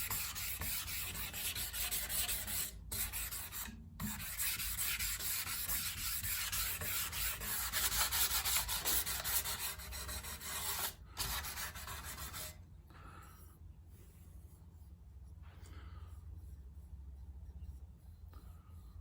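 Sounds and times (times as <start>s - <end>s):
wet sanding by hand: 0.0s - 12.5s.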